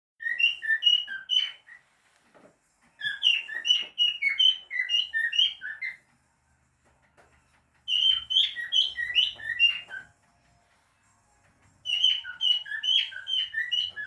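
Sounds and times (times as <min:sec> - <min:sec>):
cockatiel whistling song: 0:00.2 - 0:02.0, 0:03.0 - 0:06.1, 0:07.8 - 0:10.2, 0:11.8 - 0:14.0.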